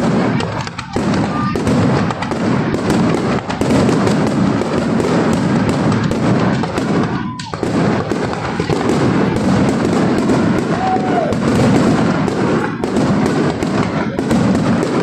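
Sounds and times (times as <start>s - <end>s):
firework whistle: 0.0s - 2.3s, 6.4s - 12.9s
fireworks bangs and crackling: 0.0s - 15.0s.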